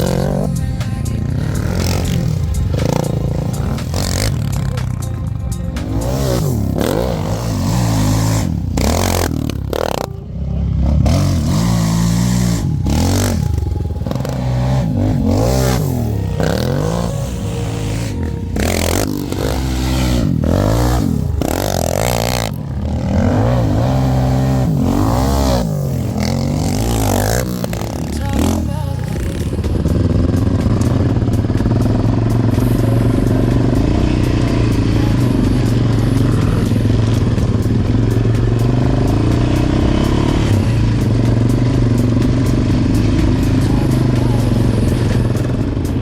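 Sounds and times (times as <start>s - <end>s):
quad engine revving: 0.0s - 46.0s.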